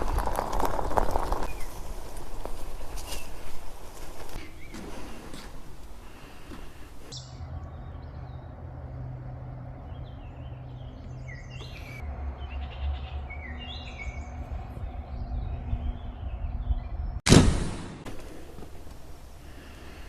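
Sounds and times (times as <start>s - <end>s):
birds chirping: 1.2s - 17.2s
steady low rumble: 7.1s - 20.0s.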